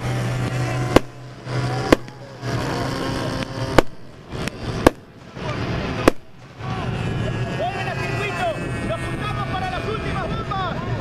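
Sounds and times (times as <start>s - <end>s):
sharp bangs: 0.0s - 9.0s
steady low hum: 0.0s - 11.0s.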